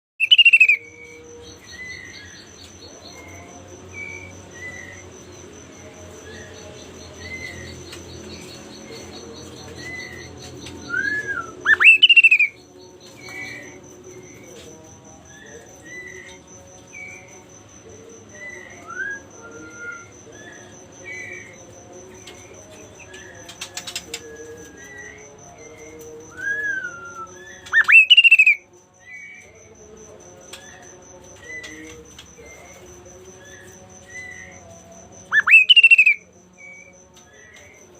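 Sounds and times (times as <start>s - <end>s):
loud sharp bird calls: 0.2s - 0.8s, 9.8s - 12.6s, 27.6s - 28.6s, 35.3s - 36.2s
songbird whistled chirps: 0.2s - 1.0s, 7.2s - 14.4s, 23.1s - 29.5s, 35.3s - 37.8s
high pulsing insect trill: 0.2s - 37.9s.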